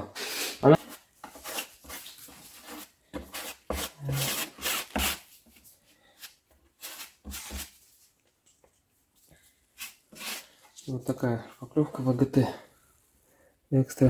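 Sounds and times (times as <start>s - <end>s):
putty knife scraping wood: 0.8s - 5.3s, 6.2s - 7.8s, 9.8s - 10.6s.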